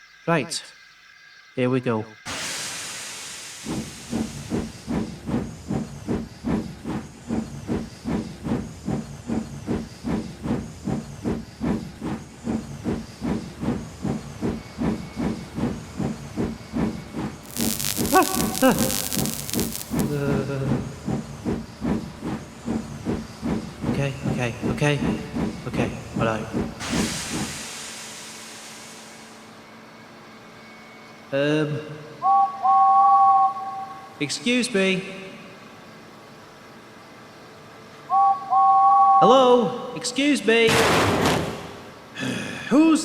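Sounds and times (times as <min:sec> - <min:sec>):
steam hissing: 0:02.3 - 0:29.6
steam locomotive chuffing: 0:02.3 - 0:29.6
whistle-like tone: 0:32.2 - 0:34.1, 0:38.1 - 0:39.3.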